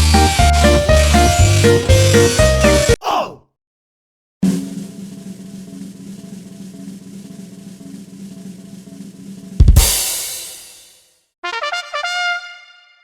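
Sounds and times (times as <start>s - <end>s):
drum roll: 4.4s - 11.1s.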